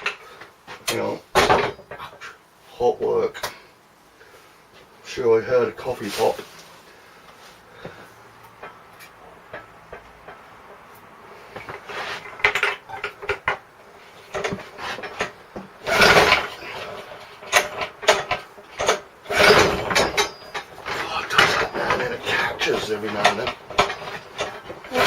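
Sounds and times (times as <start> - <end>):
lawn mower engine cranking: 0.0 - 2.2, 8.6 - 25.0.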